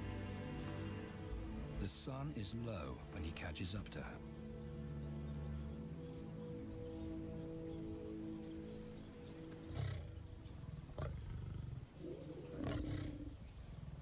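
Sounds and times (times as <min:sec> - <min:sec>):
music: 0:00.0 - 0:14.0
lions growling: 0:09.5 - 0:14.0.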